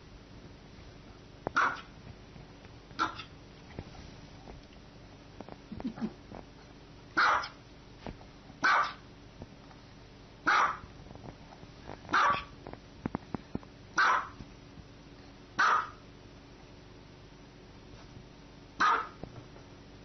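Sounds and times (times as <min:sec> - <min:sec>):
small dog barking: 0:01.5 - 0:01.9, 0:03.0 - 0:03.3, 0:07.2 - 0:07.6, 0:08.6 - 0:09.1, 0:10.4 - 0:10.9, 0:12.1 - 0:12.6, 0:14.0 - 0:14.4, 0:15.6 - 0:16.0, 0:18.8 - 0:19.2.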